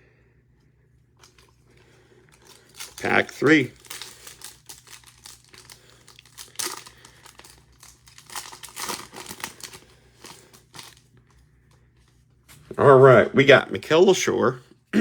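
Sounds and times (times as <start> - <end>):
card pack wrapper tearing and crinkling: 2.3 - 11.0.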